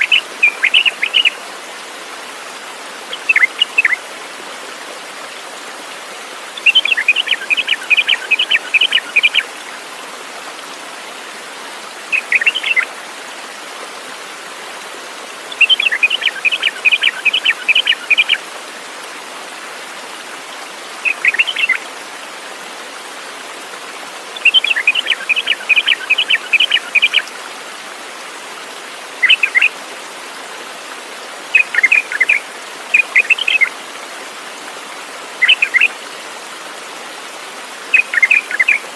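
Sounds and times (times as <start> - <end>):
songbird singing: 0.0 - 1.4, 3.1 - 4.0, 6.6 - 9.5, 12.1 - 12.9, 15.5 - 18.4, 21.0 - 21.8, 24.3 - 27.3, 29.2 - 29.7, 31.5 - 33.7, 35.4 - 36.0, 37.9 - 38.9.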